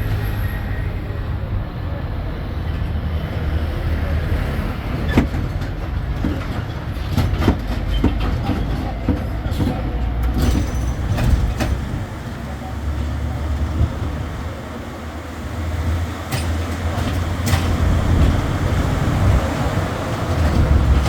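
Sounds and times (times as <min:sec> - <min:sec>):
low engine and wheel rumble: 0:00.0 - 0:21.0
carriages rattling and knocking: 0:04.0 - 0:21.0.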